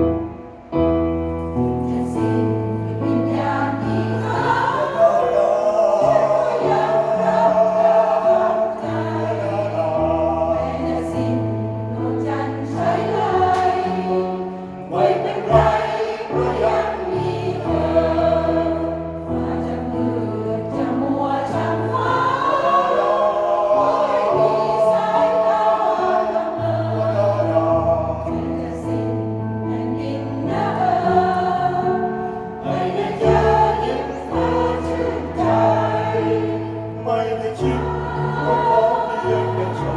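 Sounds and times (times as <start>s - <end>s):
choir singing in parts: 1.4s - 39.9s.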